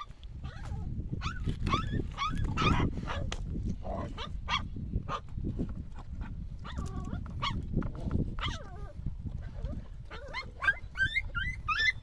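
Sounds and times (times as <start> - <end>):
animals calling high cries: 10.2 - 12.0.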